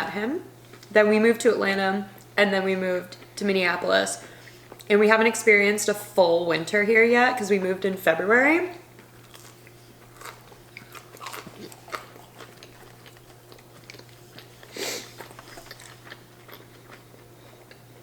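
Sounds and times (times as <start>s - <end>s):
chewing crunches: 9.0s - 18.0s.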